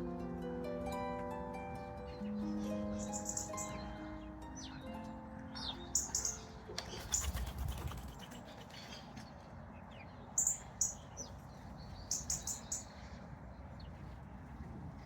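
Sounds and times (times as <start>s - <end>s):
small birds chirping: 2.0s - 14.7s.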